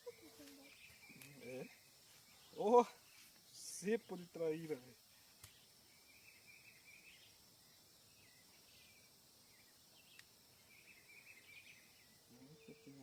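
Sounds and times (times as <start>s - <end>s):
faint bird or insect chirps: 0.0s - 13.0s
faint insect hum: 0.0s - 13.0s
faint click: 10.1s - 10.3s.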